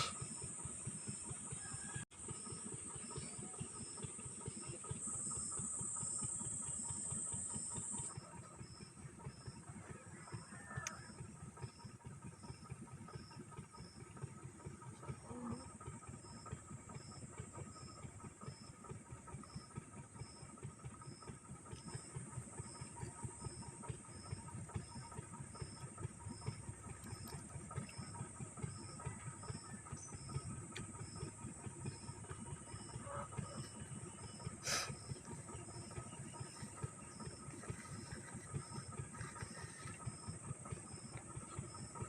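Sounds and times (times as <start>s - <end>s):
small fan whirring: 0.0s - 42.0s.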